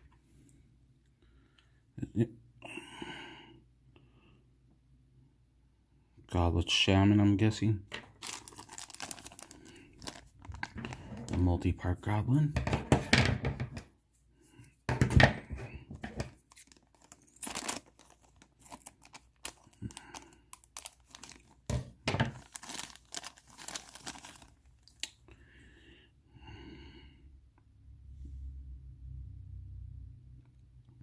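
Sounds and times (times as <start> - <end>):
plastic bags crinkling and tearing: 7.9 - 11.9, 15.5 - 25.2.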